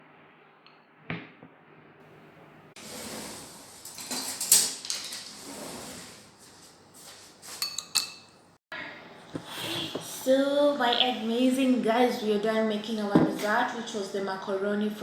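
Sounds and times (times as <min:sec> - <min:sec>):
dishes and cutlery clattering: 0:03.8 - 0:05.4, 0:07.5 - 0:08.4
utensil clinking against dish: 0:07.6 - 0:08.4.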